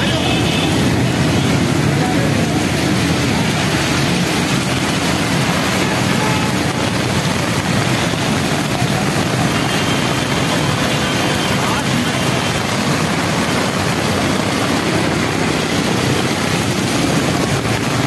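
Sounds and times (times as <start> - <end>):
heavy rain pouring: 0.0 - 18.0
traffic driving through water: 0.0 - 18.0.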